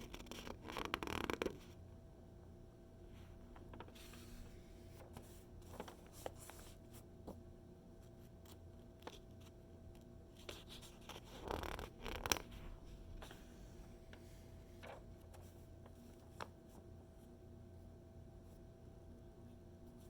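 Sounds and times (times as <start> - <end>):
magazine pages turning: 3.6 - 6.8.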